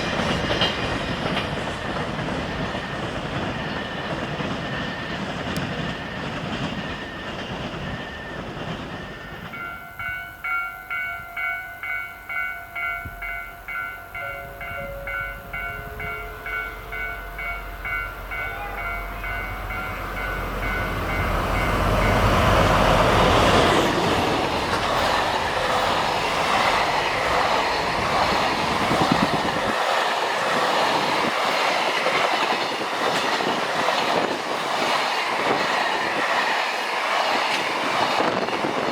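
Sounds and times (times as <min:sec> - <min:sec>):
train wheels clattering over rails: 0:00.0 - 0:09.7, 0:19.6 - 0:38.9
level crossing bell ringing: 0:09.6 - 0:22.3.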